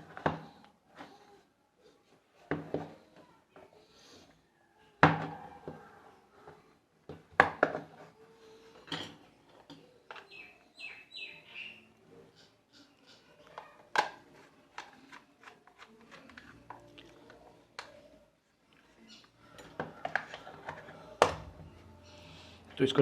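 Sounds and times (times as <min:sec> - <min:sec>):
plastic parts knocking and clattering: 0:07.0 - 0:08.1.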